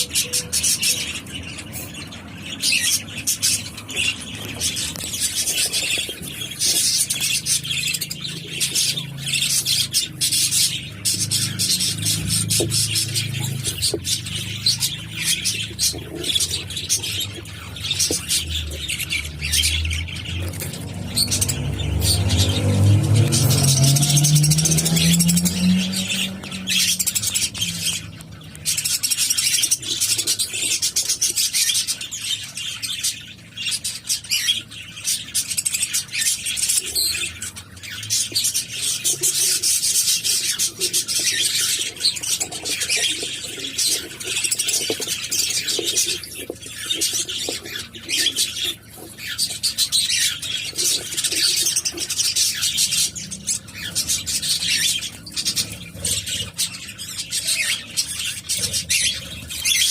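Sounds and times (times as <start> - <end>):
cockatiels chattering: 0.0 - 59.9.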